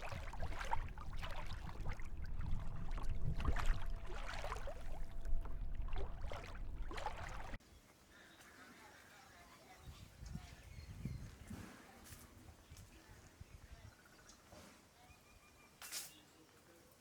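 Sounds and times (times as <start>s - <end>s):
low rumble: 0.0s - 7.6s
water splashing around a kayak: 0.0s - 7.6s.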